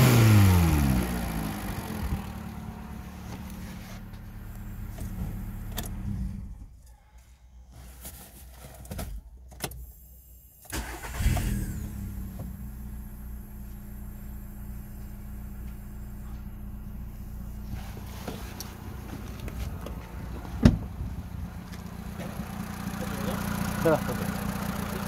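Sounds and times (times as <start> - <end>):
car engine starting and idling: 0.0 - 6.9, 9.8 - 25.0
ignition clicks: 4.5 - 6.2, 10.6 - 12.6.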